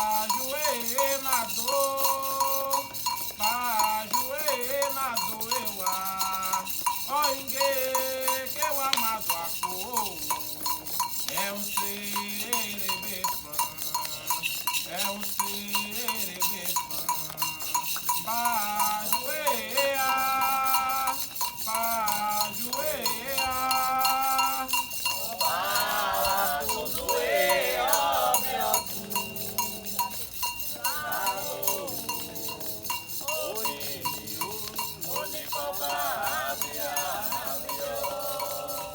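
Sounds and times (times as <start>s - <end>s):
voices chanting: 0.0s - 38.9s
metal bell strikes: 20.4s - 38.9s.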